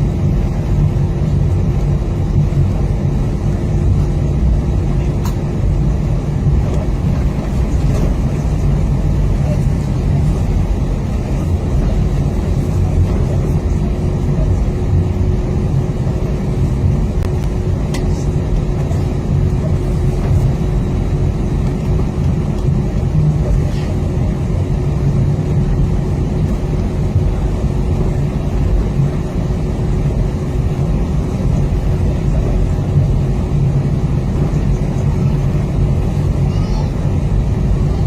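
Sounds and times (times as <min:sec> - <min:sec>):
airplane engines humming in cabin: 0:00.0 - 0:38.0.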